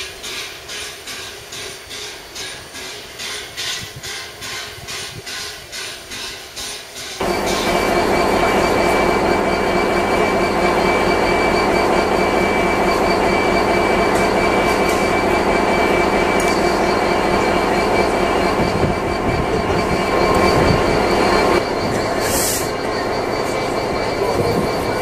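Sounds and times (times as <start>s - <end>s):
train rumbling: 0.0s - 25.0s
high squeal: 7.2s - 25.0s.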